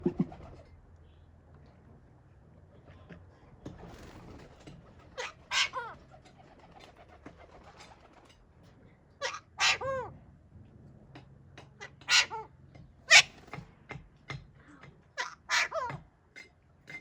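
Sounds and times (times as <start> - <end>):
parrot calling: 5.2 - 5.9, 9.2 - 10.1, 11.8 - 12.5, 13.1 - 13.4, 15.2 - 16.0.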